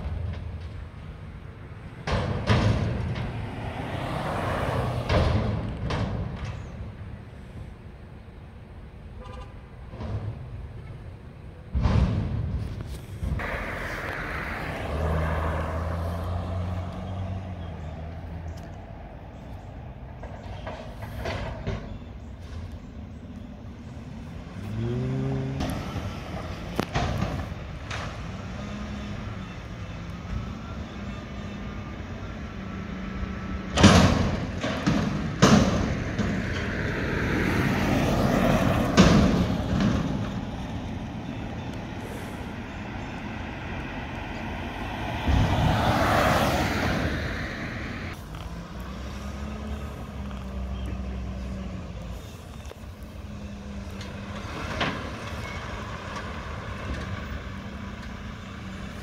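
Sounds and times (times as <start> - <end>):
loud metal bangs and clanks: 1.9 - 3.6, 5.0 - 6.8, 11.7 - 12.8, 33.7 - 36.8, 38.4 - 40.5
rush of noise: 13.1 - 16.0.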